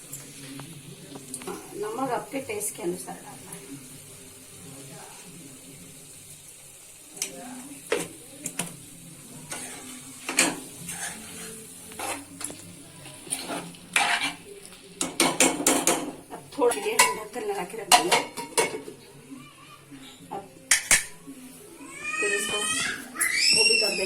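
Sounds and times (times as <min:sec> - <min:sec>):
spoon clinking and scraping pan: 0:09.5 - 0:12.6, 0:13.2 - 0:17.3, 0:20.0 - 0:21.2.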